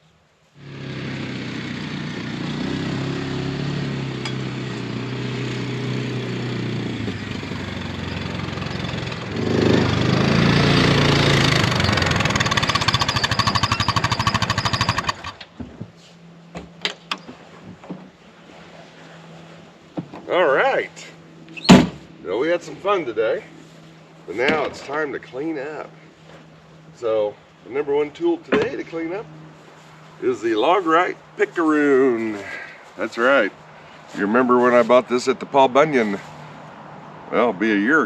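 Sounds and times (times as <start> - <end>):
small engine running: 0.6 - 15.5.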